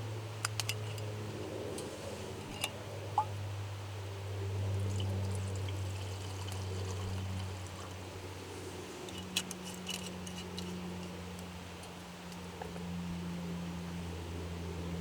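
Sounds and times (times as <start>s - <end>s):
steady low hum: 0.0s - 15.0s
liquid trickling: 4.7s - 8.1s.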